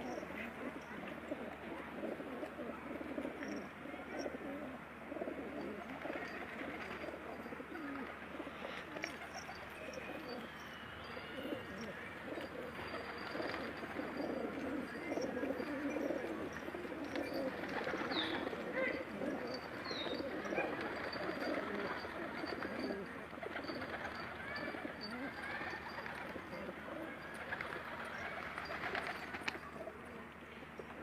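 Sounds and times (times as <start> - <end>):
pigeons cooing: 0.0 - 31.0.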